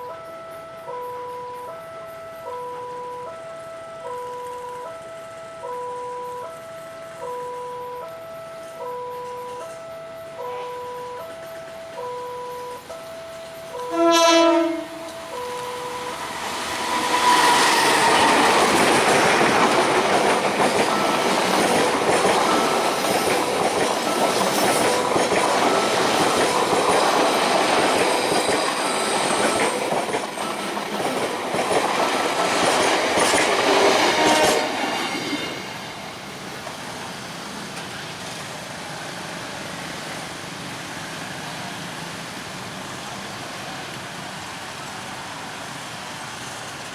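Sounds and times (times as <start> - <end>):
train horn: 10.4 - 11.1, 13.8 - 19.7, 33.2 - 36.0
train wheels clattering on rails: 10.5 - 46.9.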